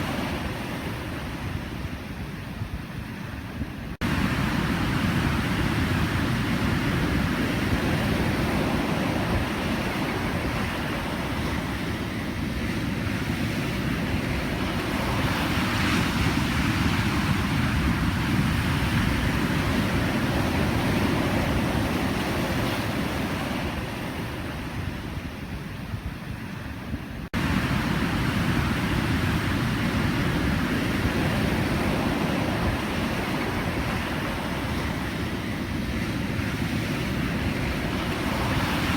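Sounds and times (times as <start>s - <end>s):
ocean waves breaking: 3.9s - 25.6s, 27.2s - 38.9s.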